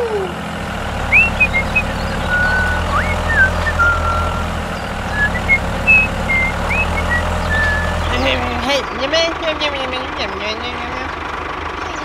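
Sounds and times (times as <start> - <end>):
tractor engine running: 0.0 - 12.0
high chirps and whistling slides: 1.0 - 4.5, 5.1 - 8.2.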